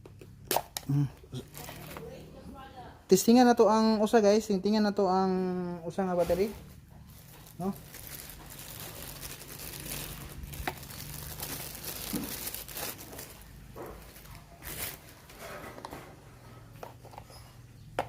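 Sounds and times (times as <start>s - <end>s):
plastic rustling: 1.2s - 2.3s, 6.0s - 17.2s.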